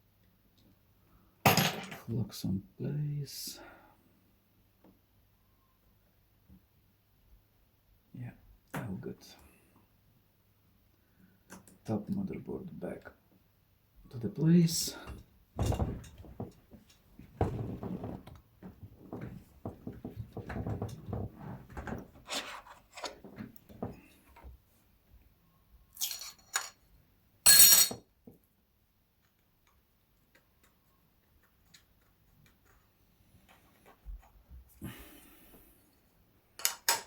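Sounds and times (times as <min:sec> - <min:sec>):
small knocks and clatter of tools: 0:15.1 - 0:24.5, 0:36.6 - 0:37.0.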